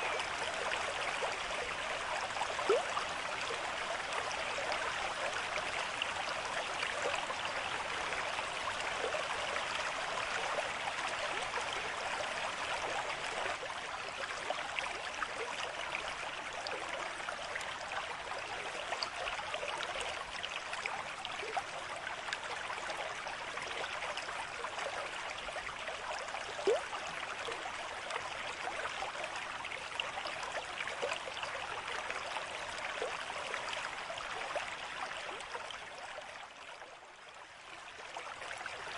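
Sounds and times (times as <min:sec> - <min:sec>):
stream babbling and trickling: 0:00.0 - 0:38.9.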